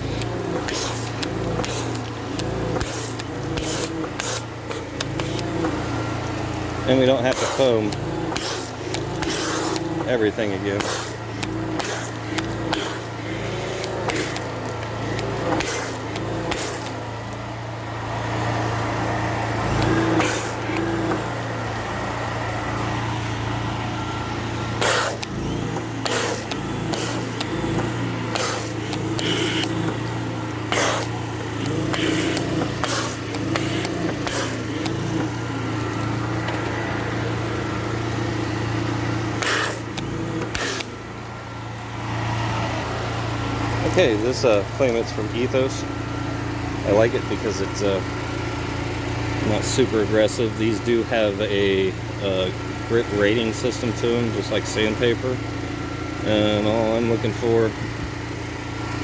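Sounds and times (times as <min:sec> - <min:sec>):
sharp clicks and knocks: 0:00.0 - 0:17.6, 0:24.7 - 0:36.9
small engine running: 0:00.0 - 0:59.0.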